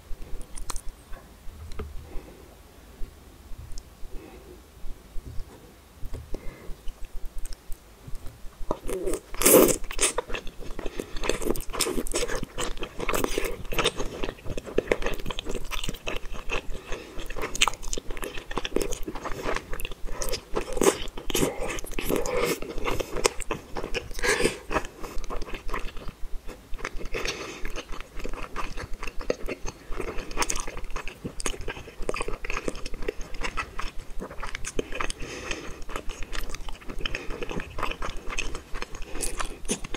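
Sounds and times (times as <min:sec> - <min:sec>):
chewing chewy rice cakes: 0:00.2 - 0:00.9, 0:08.6 - 0:39.9.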